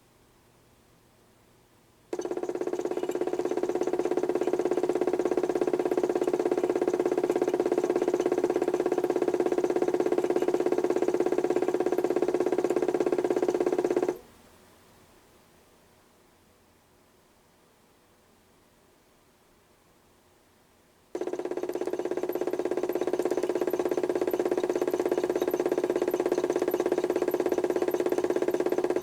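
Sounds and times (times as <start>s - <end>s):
electric motor humming: 2.2s - 14.2s, 21.2s - 29.0s.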